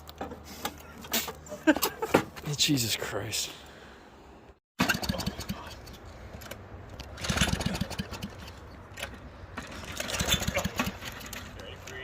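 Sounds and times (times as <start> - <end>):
lawn mower engine cranking and sputtering: 4.8 - 12.0.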